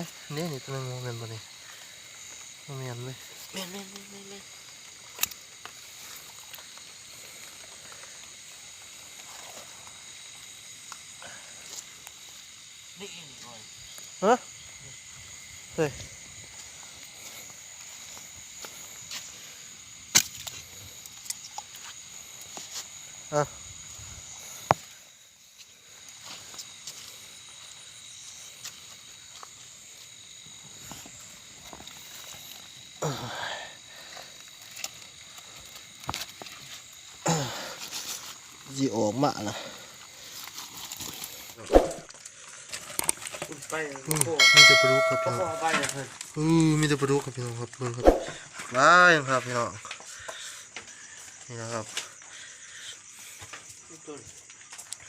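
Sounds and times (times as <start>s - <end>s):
crickets and insects trilling: 0.0s - 55.0s
small ticks: 1.4s - 12.5s, 20.1s - 23.2s, 25.6s - 33.0s, 34.0s - 37.2s, 49.5s - 55.0s.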